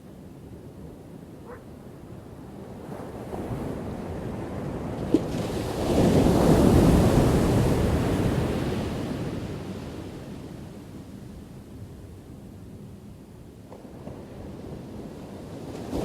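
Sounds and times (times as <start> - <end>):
ocean waves crashing on shore: 2.6 - 10.3.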